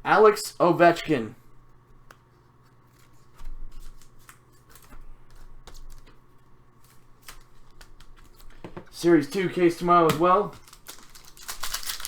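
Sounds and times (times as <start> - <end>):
cards being flipped through: 2.0 - 6.2, 6.8 - 12.0.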